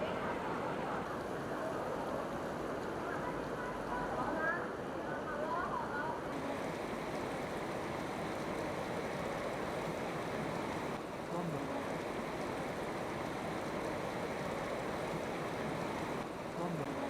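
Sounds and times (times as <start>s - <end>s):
artificial rain falling: 6.3s - 17.0s.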